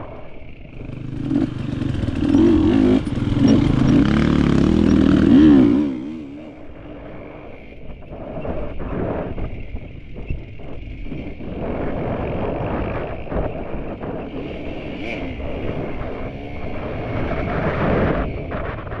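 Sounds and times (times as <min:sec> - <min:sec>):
motorcycle engine revving: 0:00.7 - 0:07.1
wind buffeting microphone: 0:00.7 - 0:19.0.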